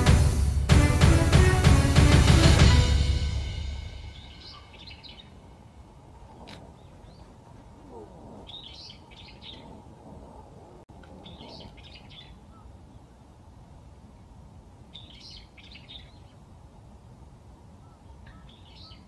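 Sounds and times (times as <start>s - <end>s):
low background hiss: 3.0s - 19.0s
birds calling in rapid bursts: 4.1s - 5.4s, 8.4s - 10.0s, 11.2s - 12.9s, 14.9s - 16.4s, 17.8s - 19.0s.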